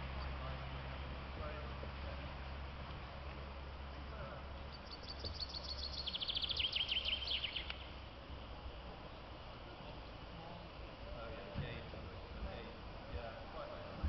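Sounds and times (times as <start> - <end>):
low background rumble: 0.0 - 14.0
songbird trilling: 4.6 - 8.0.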